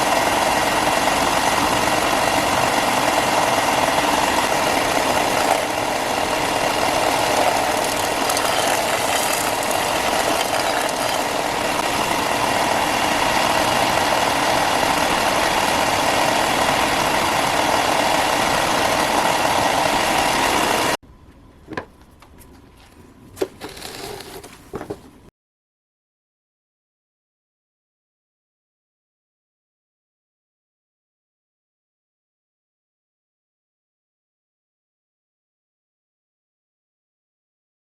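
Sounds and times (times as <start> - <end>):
power tool running: 0.0 - 21.0.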